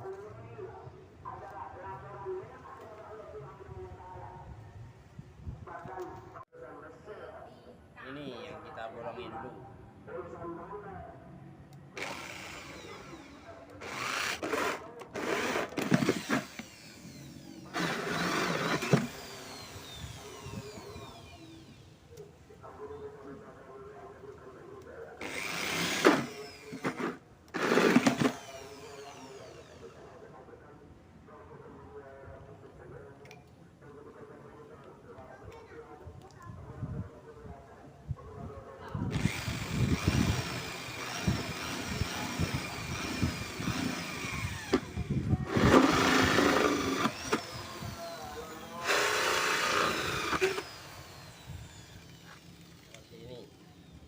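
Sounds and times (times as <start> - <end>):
electric drill boring into plastic bucket: 12.0 - 21.9, 25.2 - 30.0, 39.1 - 53.2.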